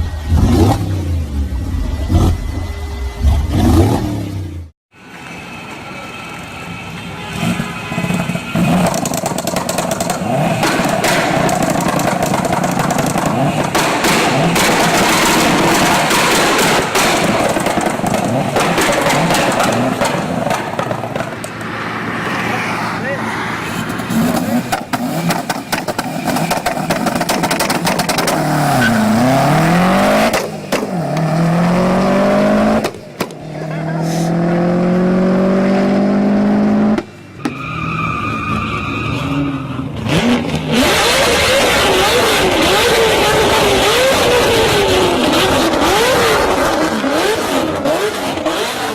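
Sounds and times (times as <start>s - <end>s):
vehicle engine revving: 0.0s - 4.7s, 7.3s - 37.2s, 38.5s - 48.9s
exhaust cracks: 8.1s - 21.8s, 23.7s - 34.3s.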